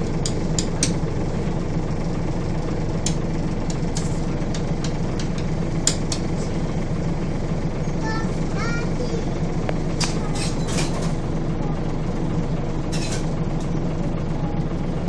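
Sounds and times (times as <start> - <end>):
bus engine droning: 0.0 - 15.0
sharp clicks and rattles: 2.7 - 6.5, 8.0 - 11.3.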